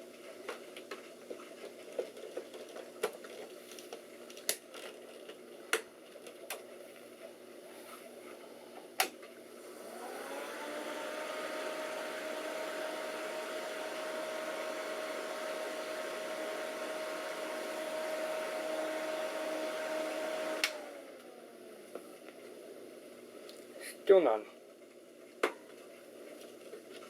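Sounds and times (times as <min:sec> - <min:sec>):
computer cooling fans whining: 0:09.0 - 0:23.4.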